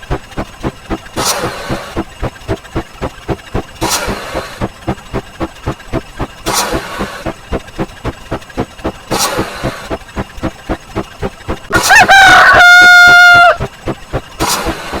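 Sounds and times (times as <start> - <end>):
rapid counter ticking: 0.0 - 15.0
rooster crow sound effect: 11.7 - 13.7.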